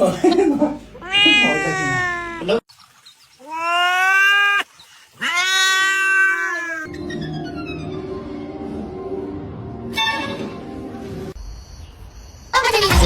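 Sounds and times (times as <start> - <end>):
cat meowing: 1.0 - 2.6, 3.4 - 6.9.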